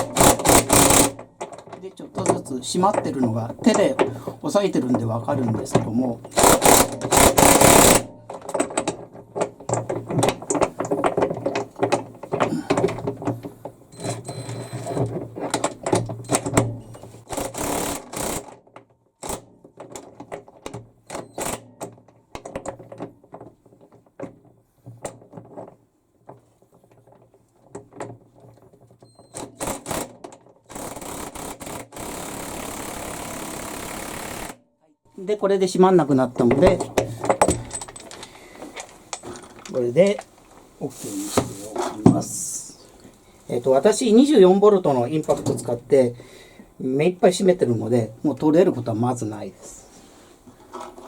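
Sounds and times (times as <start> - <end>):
impact wrench hammering: 0.0 - 1.7, 6.2 - 8.8, 17.3 - 18.5, 29.4 - 34.6.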